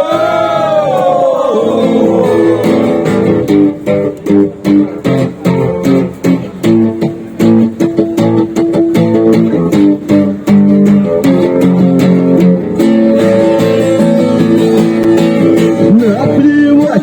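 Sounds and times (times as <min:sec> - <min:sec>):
guitar strumming chords: 0:00.2 - 0:17.0.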